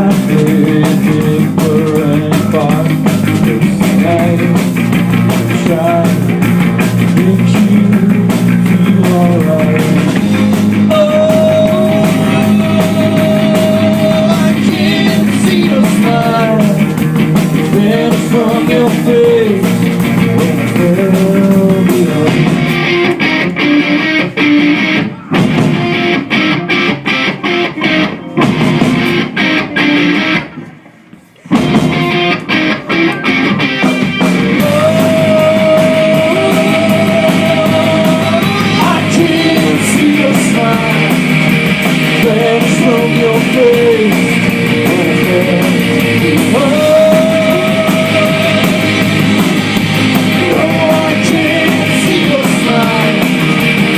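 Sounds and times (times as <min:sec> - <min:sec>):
rock band playing: 0:00.0 - 0:53.9.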